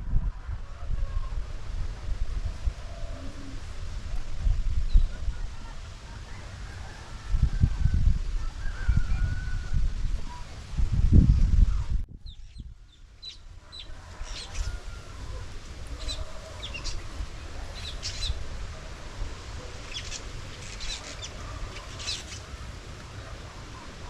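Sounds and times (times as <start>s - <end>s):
chickens clucking: 13.2s - 24.0s.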